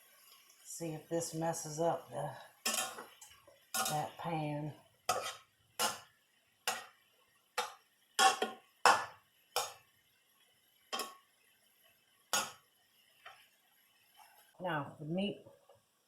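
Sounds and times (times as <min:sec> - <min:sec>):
metal utensil knocking on frying pan: 0:07.6 - 0:09.8, 0:12.4 - 0:12.6.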